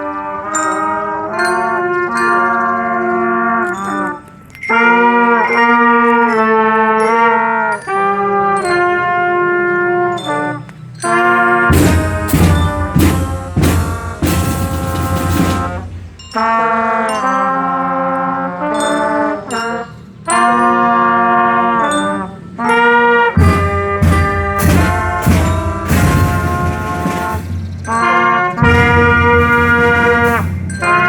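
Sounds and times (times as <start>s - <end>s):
brass chords: 0.0s - 31.0s
drums: 11.2s - 16.4s, 23.3s - 31.0s
cymbal crashes: 23.4s - 31.0s.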